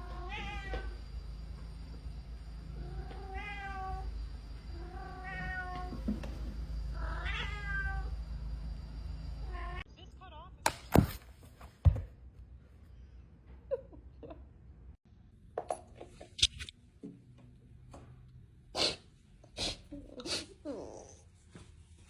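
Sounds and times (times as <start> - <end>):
steady low hum: 0.0 - 11.3
cat meowing: 2.8 - 4.1, 4.8 - 5.9, 7.0 - 8.1.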